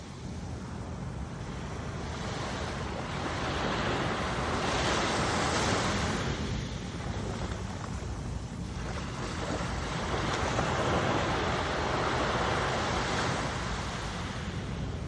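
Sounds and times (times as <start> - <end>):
sea waves washing onto shore: 0.0 - 15.0.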